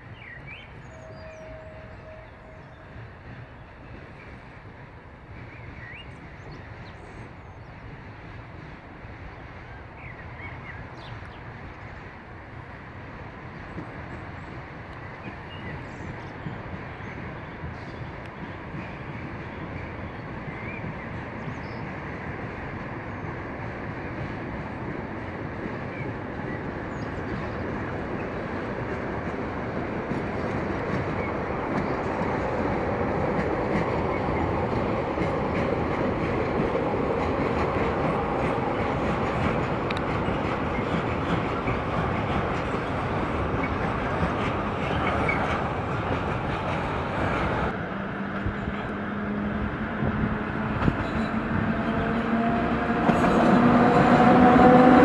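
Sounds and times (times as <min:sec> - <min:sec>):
train rumbling on rails: 0:00.0 - 0:55.0
clatter of train wheels: 0:13.4 - 0:55.0.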